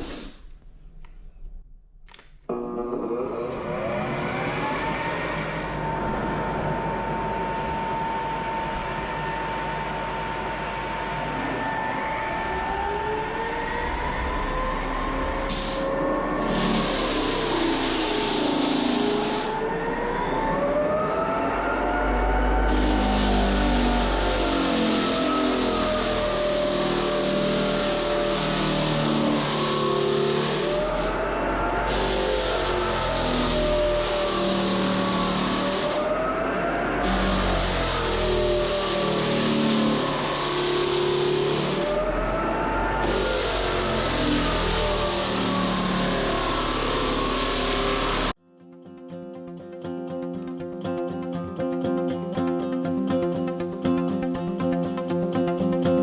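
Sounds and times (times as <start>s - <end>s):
electric floor sander whining: 2.5s - 48.4s
background music: 48.5s - 56.0s.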